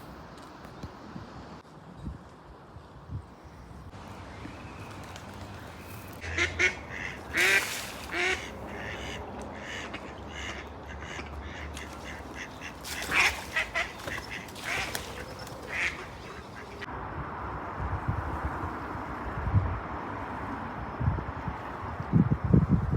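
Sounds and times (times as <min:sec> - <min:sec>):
bird calling: 0:04.2 - 0:16.9.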